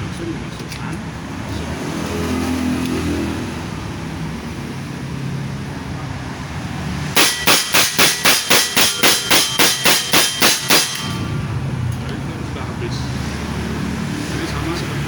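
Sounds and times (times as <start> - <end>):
air rifle shots: 7.2 - 11.4.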